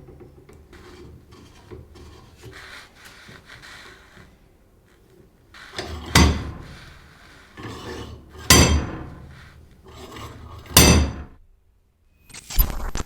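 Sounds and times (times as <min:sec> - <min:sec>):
vise sliding rasp: 0:00.0 - 0:11.3
sharp metallic clank: 0:05.8 - 0:11.4.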